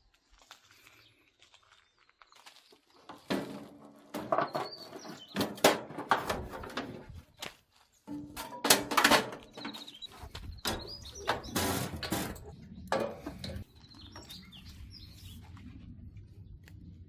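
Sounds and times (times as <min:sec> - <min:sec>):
birds chirping faintly: 0:00.1 - 0:17.0
metal parts knocking and clanking: 0:03.2 - 0:07.2, 0:08.1 - 0:13.7.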